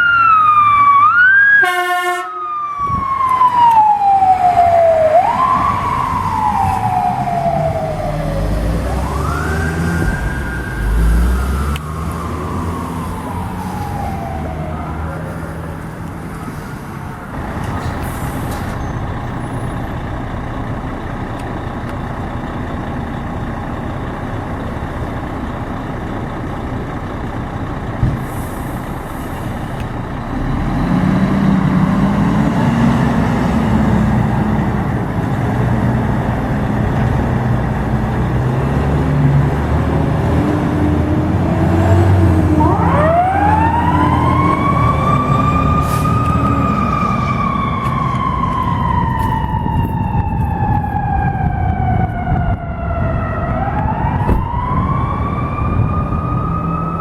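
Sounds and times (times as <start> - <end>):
siren rising in pitch: 0.0 - 17.7, 39.1 - 57.0
fire truck engine running: 0.0 - 57.0.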